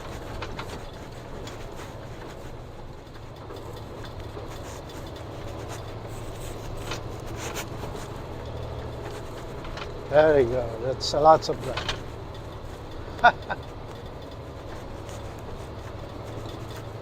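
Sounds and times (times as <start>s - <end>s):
light clicks and crackles: 0.0s - 17.0s
truck engine and road drone: 0.0s - 17.0s.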